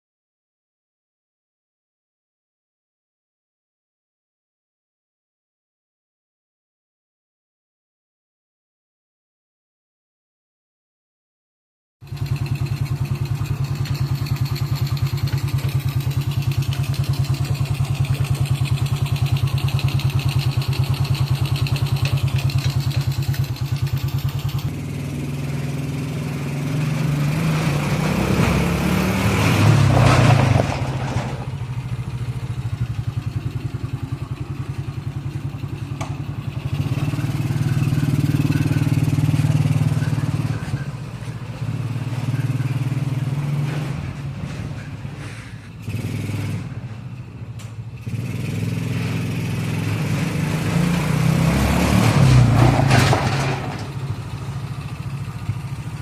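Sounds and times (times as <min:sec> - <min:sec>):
small engine running: 0:12.0 - 0:30.4, 0:34.8 - 0:46.7.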